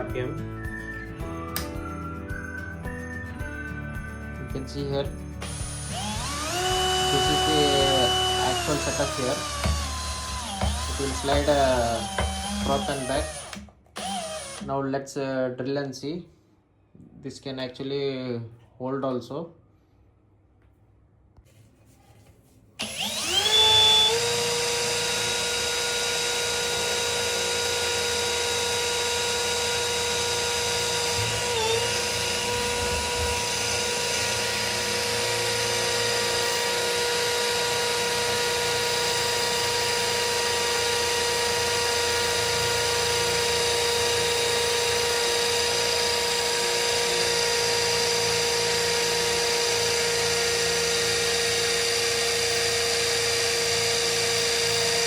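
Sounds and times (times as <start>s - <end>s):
cordless drill drilling steel: 4.6s - 14.7s, 22.8s - 55.0s.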